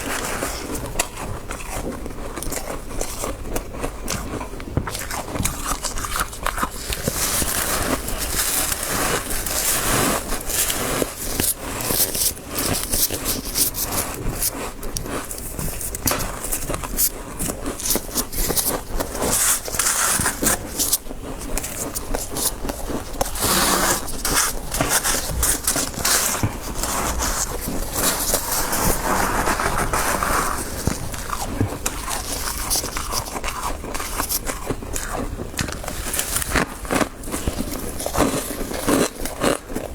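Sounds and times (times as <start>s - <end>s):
crunching chewing of frost: 0.0s - 39.9s
scraping: 21.7s - 33.3s.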